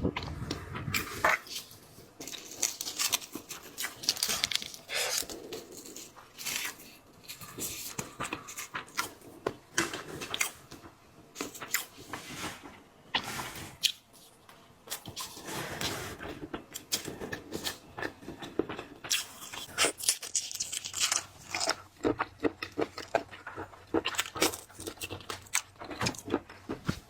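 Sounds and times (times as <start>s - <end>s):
chewing crunches: 0.9s - 10.6s, 16.5s - 27.0s
seafood shells cracking: 1.4s - 9.0s, 19.1s - 23.2s.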